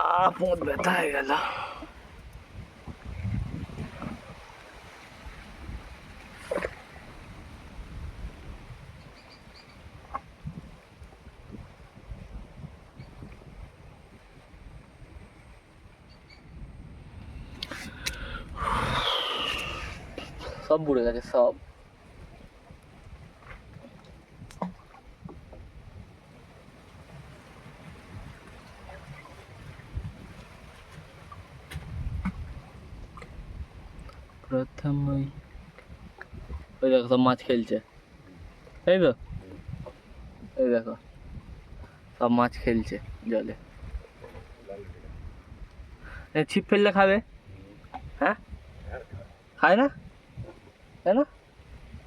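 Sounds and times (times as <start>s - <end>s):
water lapping: 0.0s - 16.4s, 17.2s - 34.6s, 42.8s - 46.3s
low rumble of wind: 0.0s - 52.0s.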